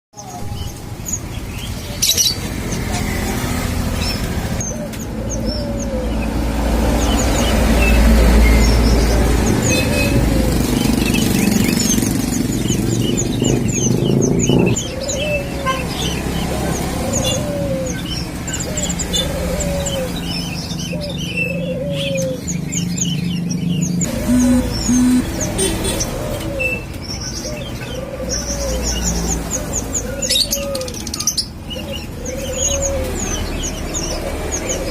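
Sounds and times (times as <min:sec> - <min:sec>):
small birds chirping: 0:00.2 - 0:34.9
dove cooing: 0:04.6 - 0:22.5, 0:24.0 - 0:31.0, 0:31.8 - 0:34.9
low rumble: 0:12.8 - 0:14.8.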